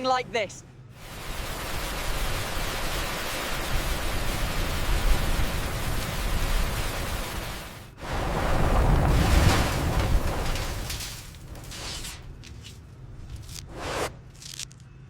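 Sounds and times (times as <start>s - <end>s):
steady rushing noise: 1.0s - 11.0s.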